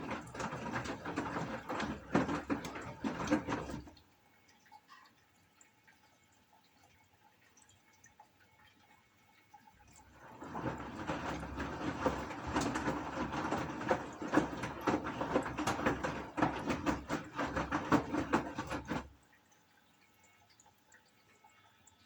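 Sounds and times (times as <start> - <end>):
washing machine drum turning: 0.0 - 4.0, 10.1 - 19.2
water and laundry sloshing: 0.0 - 5.1, 9.4 - 21.2.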